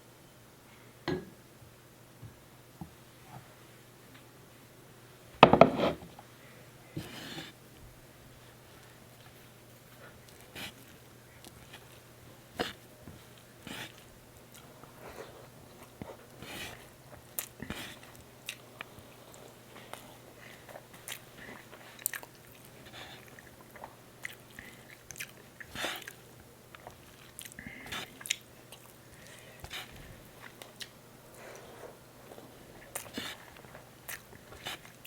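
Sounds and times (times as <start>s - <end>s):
food crunching: 10.2s - 35.0s
person chewing and biting: 17.2s - 31.0s, 32.8s - 35.0s.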